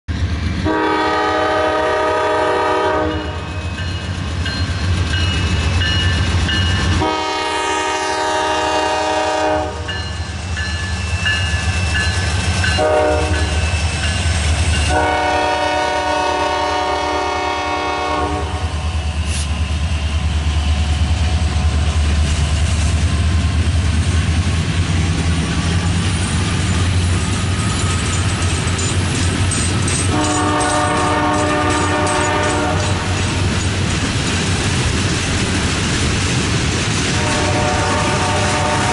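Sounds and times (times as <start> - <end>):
low rumble of locomotives passing: 0.1 - 38.9
wheel clatter of rail cars: 0.1 - 38.9
locomotive air horn: 0.6 - 3.6, 7.0 - 10.0, 12.7 - 13.7, 14.8 - 19.5, 30.1 - 33.1, 37.1 - 38.9.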